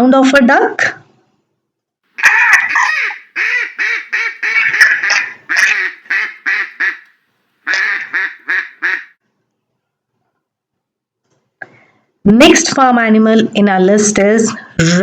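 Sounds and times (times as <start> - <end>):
duck quacking: 2.2 - 9.2.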